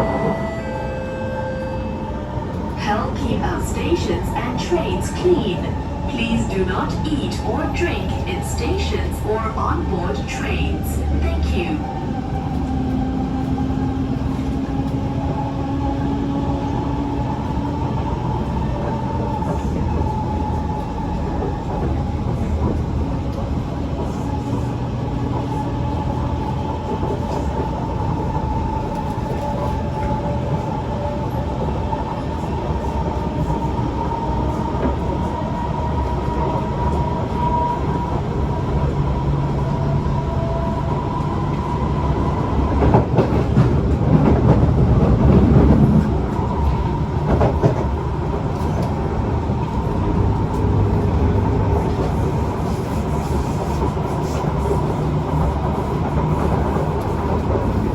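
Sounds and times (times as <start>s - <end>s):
faint high tone: 0.0s - 2.2s
train wheels rumbling on rail: 0.0s - 57.9s
train clatter: 34.4s - 57.9s.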